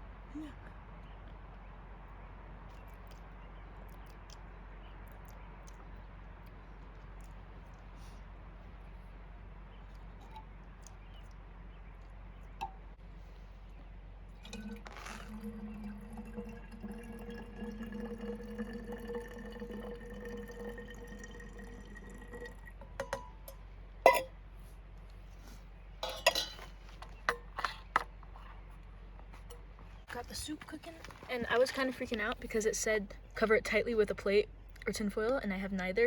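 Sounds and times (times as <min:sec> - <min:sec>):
hot water pouring into container: 0:14.4 - 0:23.2
metal lid and cookware clinking: 0:22.9 - 0:24.3, 0:26.0 - 0:26.7.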